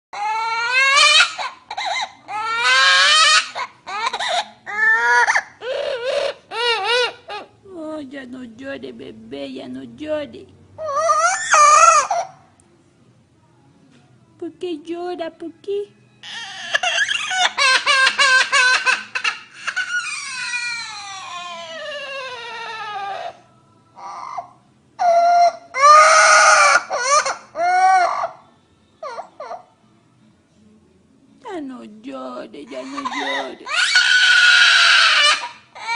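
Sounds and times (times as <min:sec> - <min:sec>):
parrot mimicking child crying: 0:00.2 - 0:07.6, 0:10.8 - 0:12.5, 0:16.2 - 0:29.9, 0:32.7 - 0:35.9.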